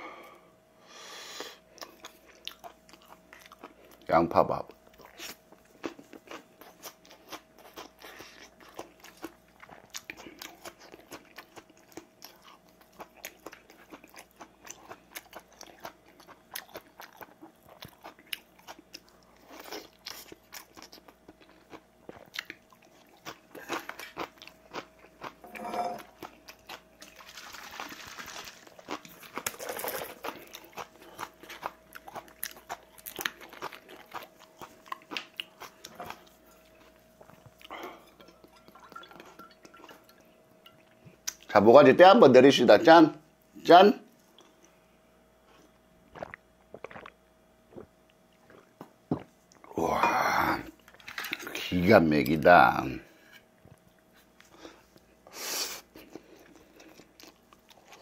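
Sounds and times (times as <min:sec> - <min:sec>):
close-up chewing and smacking: 0:01.7 - 0:04.1, 0:04.7 - 0:25.4, 0:30.1 - 0:41.5, 0:55.9 - 0:58.0.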